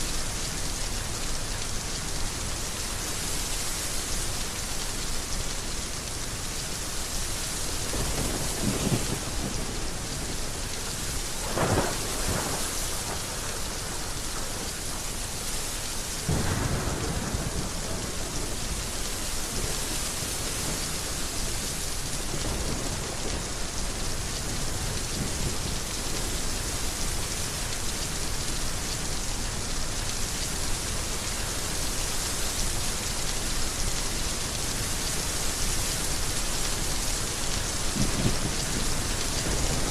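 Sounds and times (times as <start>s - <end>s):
heavy rain falling: 0.0s - 39.9s
thunder rumbling: 11.4s - 14.8s, 16.2s - 18.6s, 37.9s - 39.9s.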